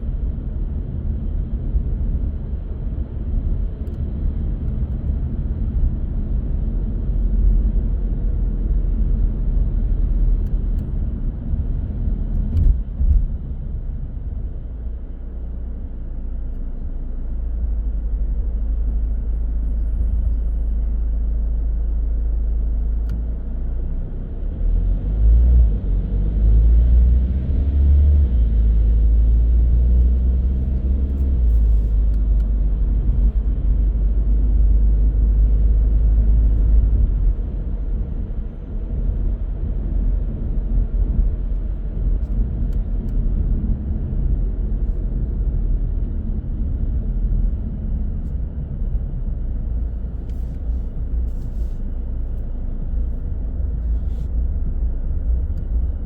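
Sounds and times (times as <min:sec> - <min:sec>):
car engine and tyres rumble: 0:00.0 - 0:56.0.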